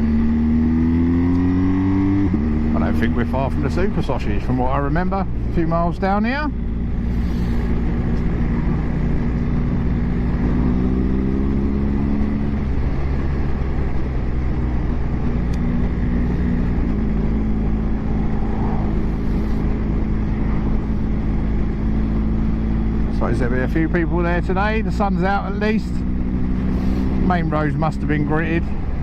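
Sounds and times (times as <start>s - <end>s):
motorcycle engine running: 0.0s - 29.0s
wind and road noise: 0.0s - 29.0s.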